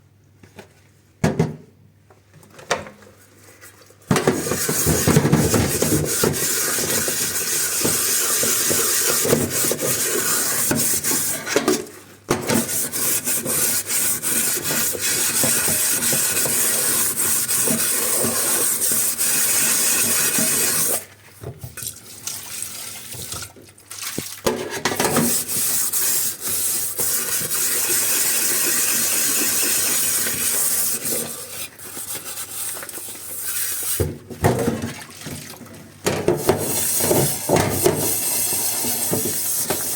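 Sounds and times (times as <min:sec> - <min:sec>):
tap water running into sink: 0:04.3 - 0:11.3, 0:14.4 - 0:21.0, 0:21.8 - 0:35.7, 0:36.3 - 0:39.9.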